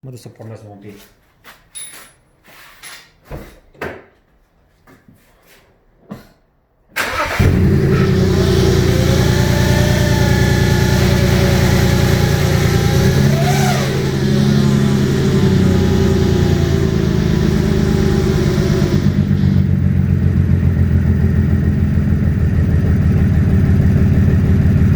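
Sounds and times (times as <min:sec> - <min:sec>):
car engine running: 0:07.4 - 0:24.9.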